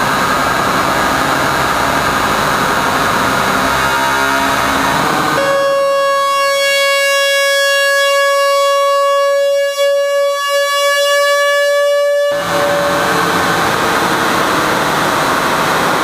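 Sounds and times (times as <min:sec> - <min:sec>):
harsh hissing electronic noise: 0:00.0 - 0:05.4, 0:12.1 - 0:16.0
buzzy electronic drone tone: 0:00.0 - 0:16.0.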